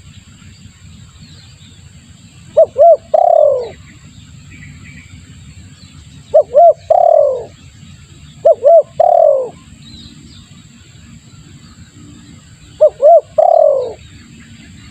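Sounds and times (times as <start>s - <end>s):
dove cooing: 2.4s - 3.8s, 6.3s - 7.6s, 8.4s - 9.8s, 12.1s - 14.2s.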